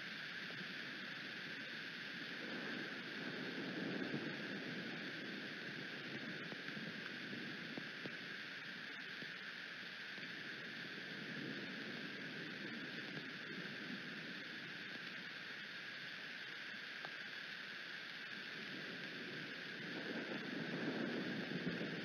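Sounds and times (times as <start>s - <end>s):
faint ticks: 0.0s - 22.0s
rain: 0.0s - 22.0s
wind: 0.0s - 22.0s.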